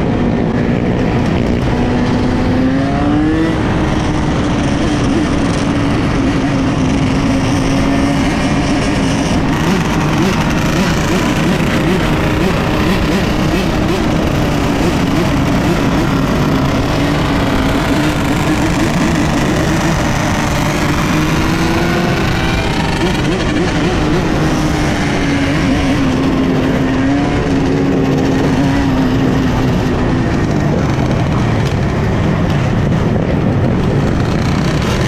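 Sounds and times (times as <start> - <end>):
dirt bike engines revving: 0.0 - 35.0
steady low rumble: 26.0 - 35.0.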